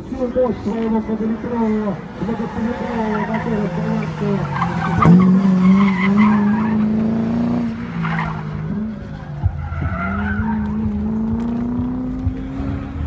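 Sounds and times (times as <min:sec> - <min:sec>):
car engine accelerating: 0:00.3 - 0:13.0
tyres squealing: 0:01.5 - 0:07.2.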